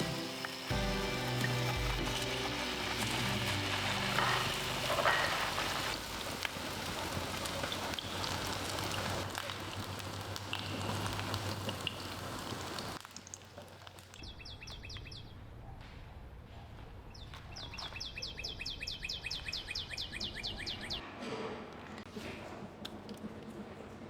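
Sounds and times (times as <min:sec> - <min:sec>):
rain hiss: 0:00.0 - 0:14.2.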